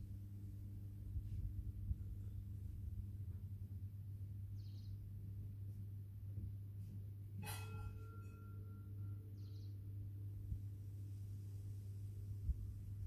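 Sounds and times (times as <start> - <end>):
steady low hum: 0.0 - 13.0
metal object ringing after tap: 7.4 - 9.2.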